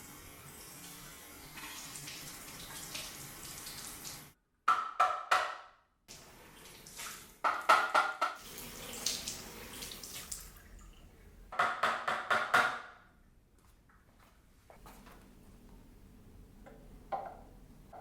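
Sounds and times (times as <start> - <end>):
tap water running: 0.0 - 4.4, 6.1 - 11.2.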